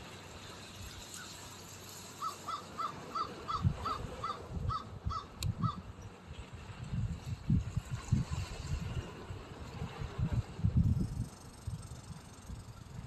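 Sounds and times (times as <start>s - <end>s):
low rumbling gusts: 3.4s - 13.0s.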